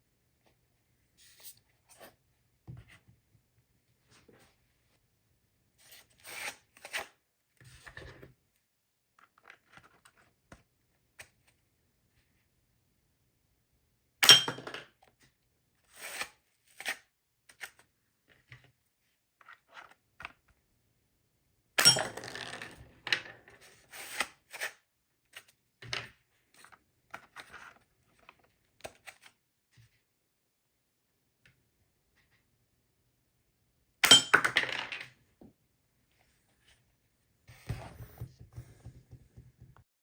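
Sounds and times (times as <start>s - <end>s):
cardboard taps rustles and clicks: 37.5s - 39.8s.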